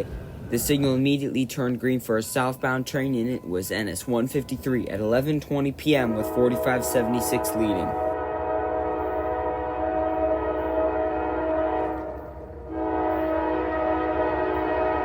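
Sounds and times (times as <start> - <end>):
train rumbling: 0.0 - 15.0
locomotive air horn blast: 5.9 - 15.0.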